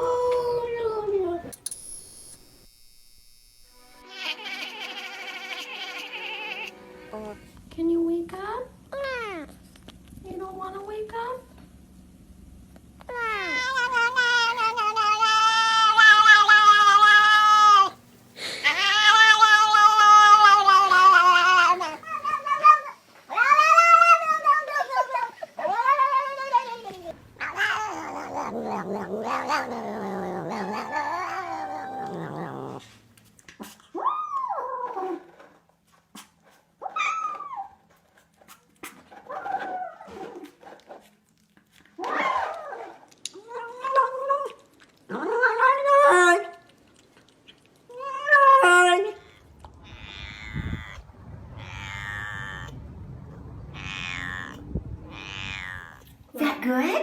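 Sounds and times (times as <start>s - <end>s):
cat meowing: 4.0s - 6.7s, 13.1s - 18.0s, 18.6s - 24.8s, 47.9s - 56.2s
cat yowling: 4.0s - 6.7s, 13.1s - 32.7s, 47.9s - 56.2s
rough animal call: 48.6s - 56.2s
low rumble: 49.2s - 56.4s.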